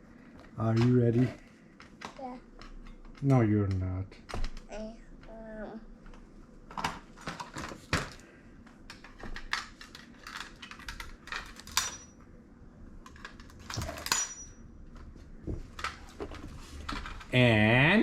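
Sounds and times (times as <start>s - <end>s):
small plastic and metal pieces clattering: 9.4s - 12.0s.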